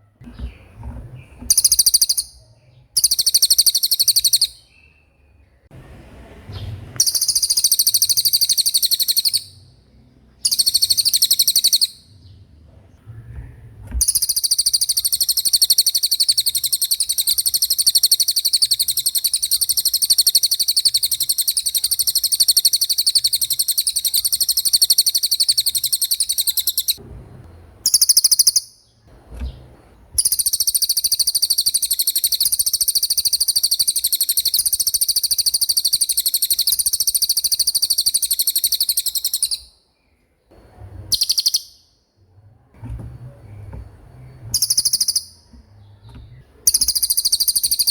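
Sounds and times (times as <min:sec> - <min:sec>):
songbird fast high trill: 0:01.5 - 0:04.7, 0:07.0 - 0:09.6, 0:10.4 - 0:12.1, 0:14.0 - 0:27.0, 0:41.1 - 0:41.9.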